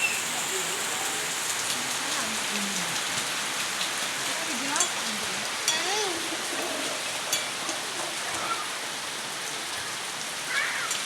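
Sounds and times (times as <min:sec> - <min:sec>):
rain falling: 0:00.0 - 0:11.0
faint voice calls: 0:08.4 - 0:08.8, 0:09.8 - 0:11.0.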